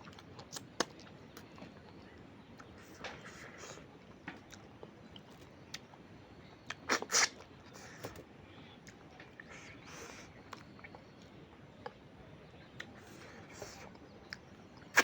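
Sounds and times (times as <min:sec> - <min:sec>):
chewing: 0:00.0 - 0:08.2, 0:08.8 - 0:15.0
wet mouth clicks: 0:06.8 - 0:07.5, 0:14.3 - 0:15.0.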